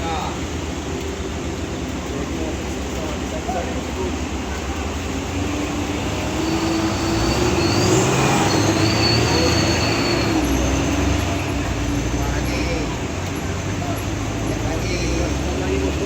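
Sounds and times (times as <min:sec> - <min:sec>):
truck engine labouring: 0:00.0 - 0:16.0
high wavering squeal: 0:06.1 - 0:11.6.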